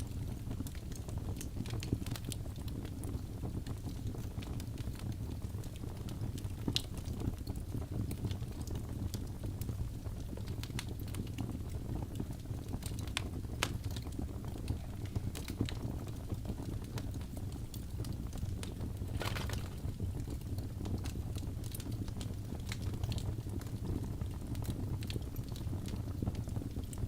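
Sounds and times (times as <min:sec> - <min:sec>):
low rumble of flames: 0:00.0 - 0:27.0
wood crackling and popping: 0:00.0 - 0:27.0.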